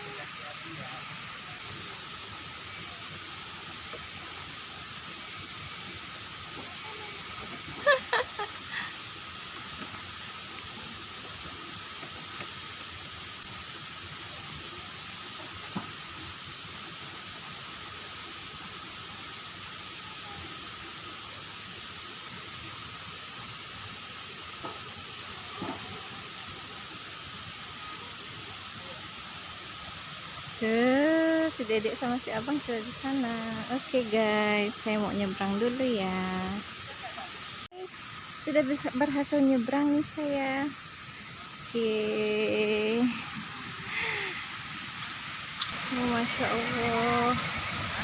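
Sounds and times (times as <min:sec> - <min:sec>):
waterfall rushing: 0:00.0 - 0:30.3, 0:40.7 - 0:48.0.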